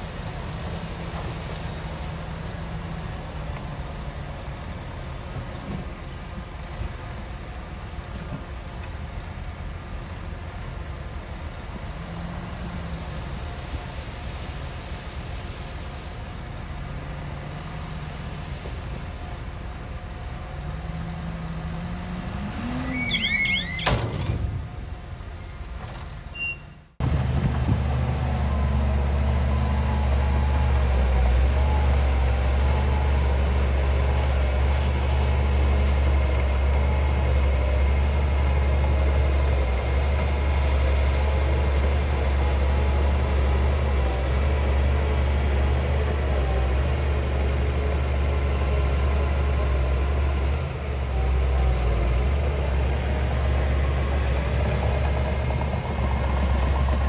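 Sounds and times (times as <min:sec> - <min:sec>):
heavy diesel engine rumbling: 0:00.0 - 0:57.0.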